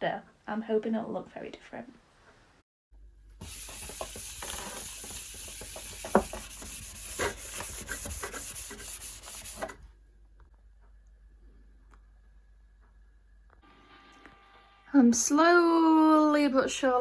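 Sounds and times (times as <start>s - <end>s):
rubbing and rustling: 3.4s - 9.9s.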